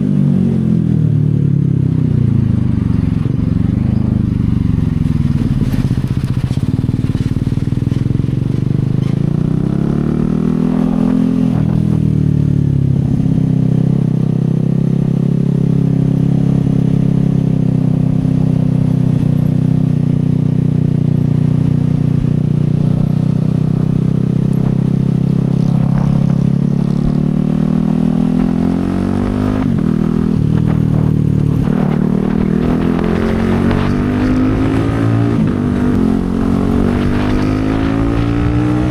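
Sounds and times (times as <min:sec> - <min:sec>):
motorcycle engine while riding: 0:00.0 - 0:38.9.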